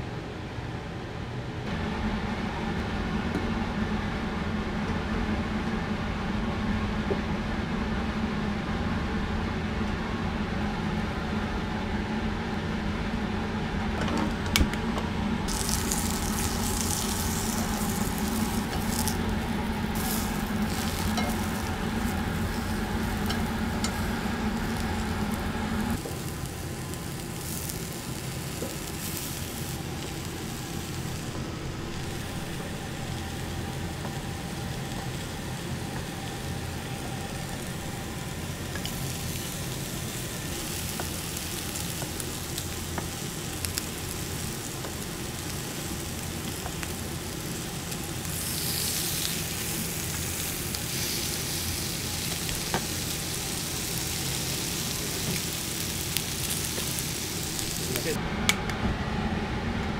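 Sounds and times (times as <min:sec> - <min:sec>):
steady low hum: 0:00.0 - 0:59.9
food sizzling in a pan: 0:15.5 - 0:58.2.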